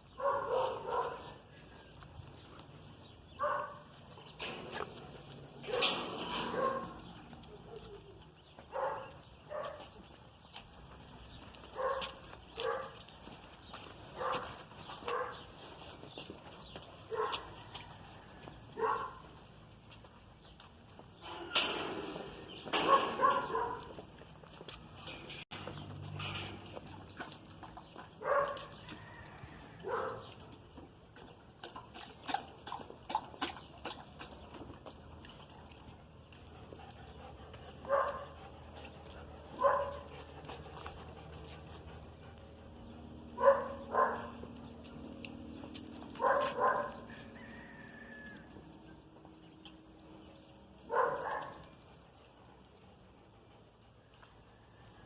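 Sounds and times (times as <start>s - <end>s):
dog barking: 0.2s - 1.4s, 3.4s - 3.8s, 5.7s - 7.0s, 8.7s - 9.8s, 11.8s - 13.0s, 14.2s - 15.4s, 17.1s - 17.4s, 18.8s - 19.2s, 22.8s - 23.9s, 28.2s - 28.7s, 29.8s - 30.3s, 37.9s - 38.4s, 39.6s - 40.1s, 43.4s - 44.4s, 46.2s - 47.1s, 50.9s - 51.6s.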